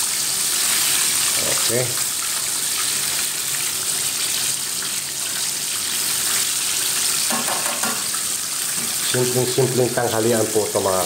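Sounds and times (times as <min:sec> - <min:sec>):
chicken deep-frying in oil: 0:00.0 - 0:11.0.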